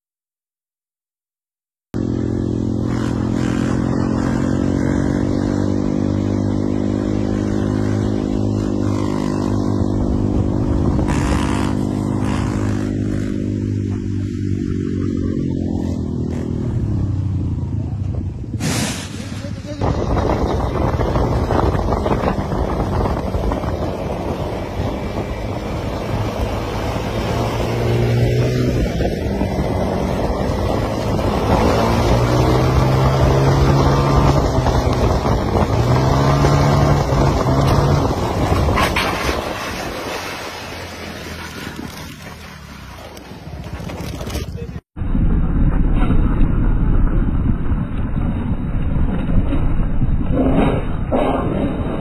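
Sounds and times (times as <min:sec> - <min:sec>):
motorcycle engine accelerating: 0:02.0 - 0:18.6, 0:19.5 - 0:52.0
wind buffeting microphone: 0:19.4 - 0:40.5.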